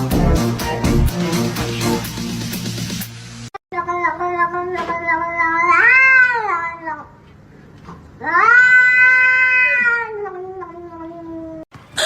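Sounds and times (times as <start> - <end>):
cat meowing: 8.2 - 11.6.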